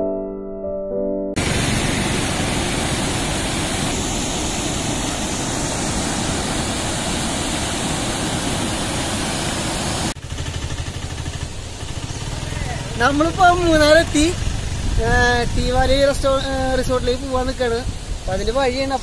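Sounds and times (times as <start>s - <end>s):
music: 0.0s - 1.4s
low rumbling noise: 1.4s - 17.2s
waterfall roaring: 1.4s - 19.0s.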